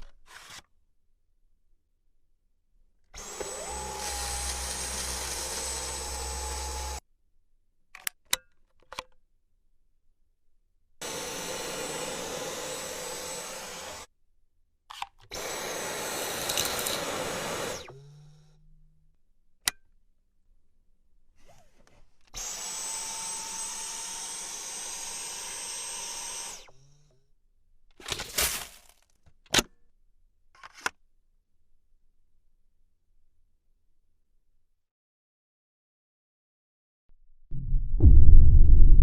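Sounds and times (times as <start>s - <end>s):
stick vacuum motor whining: 3.2s - 7.0s, 11.0s - 14.1s, 15.2s - 18.7s, 22.4s - 27.2s.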